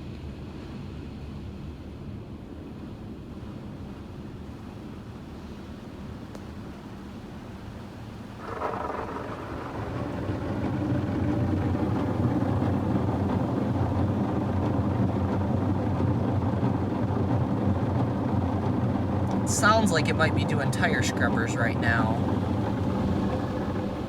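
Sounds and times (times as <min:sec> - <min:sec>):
car wash motor hum: 0:03.6 - 0:24.0
rushing wash noise: 0:08.3 - 0:24.0.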